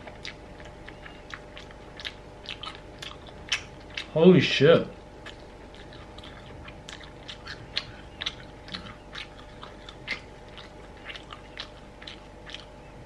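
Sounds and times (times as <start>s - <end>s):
person chewing meat: 0.0s - 13.0s
mouth clicks: 5.2s - 12.8s.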